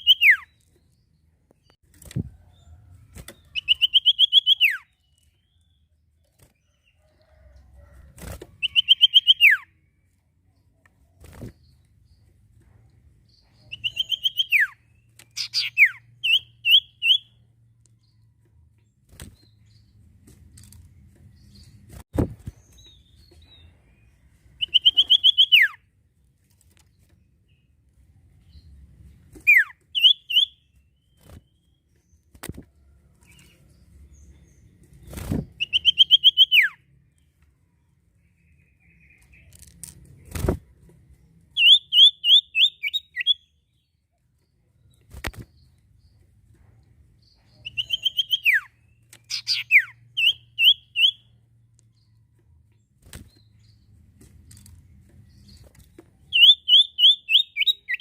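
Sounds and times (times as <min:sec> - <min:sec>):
songbird chattering song: 0:00.0 - 0:01.8, 0:02.6 - 0:05.9, 0:08.6 - 0:09.9, 0:13.3 - 0:18.2, 0:22.5 - 0:25.9, 0:28.4 - 0:32.4, 0:33.2 - 0:37.4, 0:38.2 - 0:39.8, 0:41.3 - 0:58.0.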